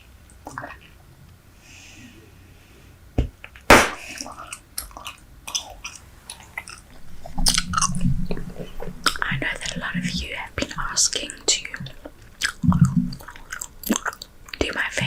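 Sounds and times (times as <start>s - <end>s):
loud sharp gum snap: 3.7s - 4.2s
wet chewing of bubble gum: 4.4s - 14.6s.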